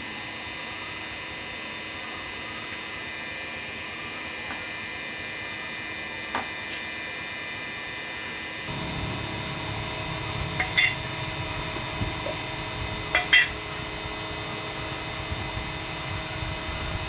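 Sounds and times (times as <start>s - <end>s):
motor humming: 8.7s - 17.0s.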